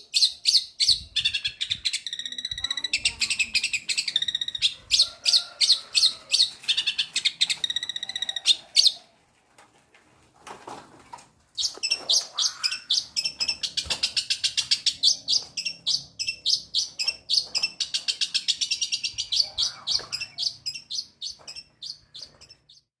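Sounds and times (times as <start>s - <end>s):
bird singing sharp high chirps: 0.2s - 4.8s, 11.6s - 22.9s.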